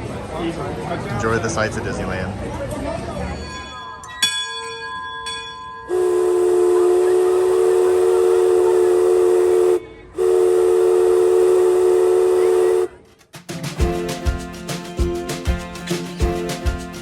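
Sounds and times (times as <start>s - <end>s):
short ringing strikes: 3.3s - 6.2s
steam whistle blasts: 5.9s - 13.0s.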